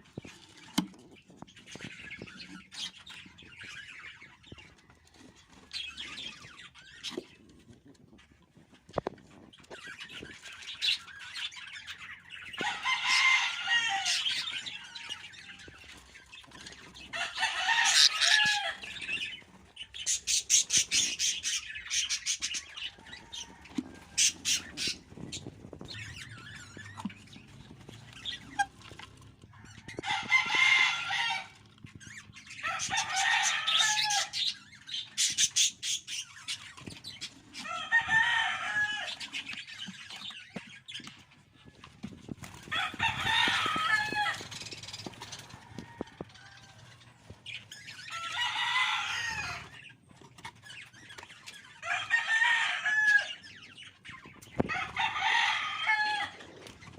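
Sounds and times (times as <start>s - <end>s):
budgerigar chicks calling: 9.8s - 29.0s, 29.6s - 37.6s.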